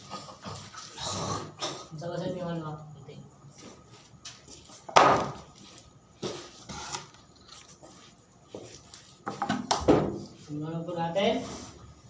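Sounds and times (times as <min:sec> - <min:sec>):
hard objects knocking and clattering: 0:09.2 - 0:10.3.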